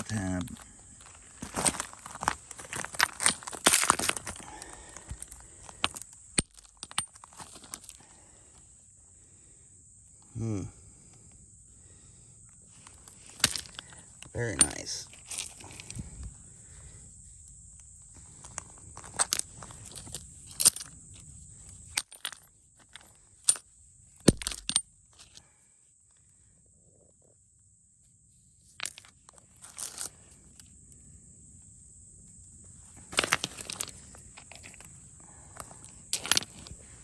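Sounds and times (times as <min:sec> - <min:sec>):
footsteps crunching on gravel: 0:00.6 - 0:05.4
stones clicking together: 0:02.7 - 0:08.0, 0:13.3 - 0:16.0, 0:24.2 - 0:25.4, 0:33.1 - 0:34.9, 0:35.6 - 0:36.8.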